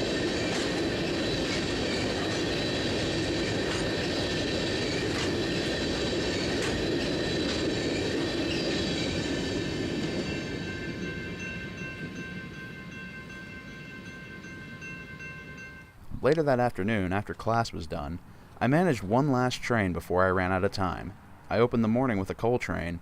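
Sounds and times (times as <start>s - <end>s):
wheel squeal: 0.0s - 11.6s
freight train rumbling past: 0.0s - 17.2s.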